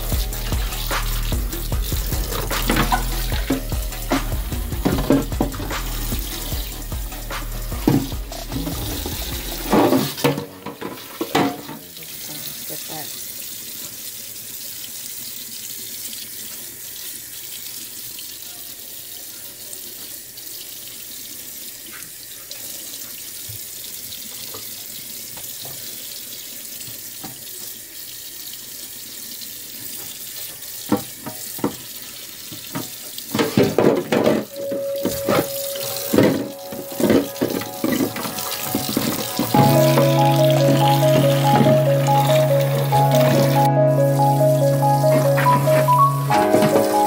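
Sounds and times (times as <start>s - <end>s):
tap running into sink: 0.5s - 6.7s, 7.7s - 11.8s, 26.8s - 27.8s, 29.9s - 43.6s, 45.0s - 47.0s.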